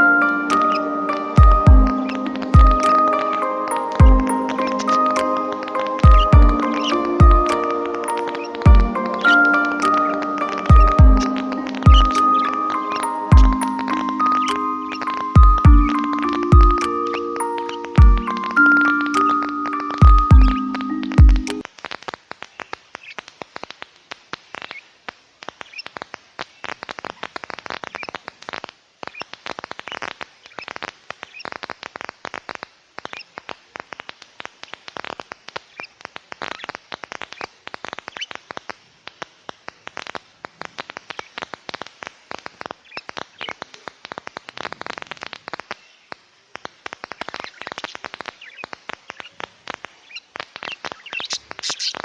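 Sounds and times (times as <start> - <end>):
small birds chattering: 6.2 - 7.1, 50.0 - 52.0.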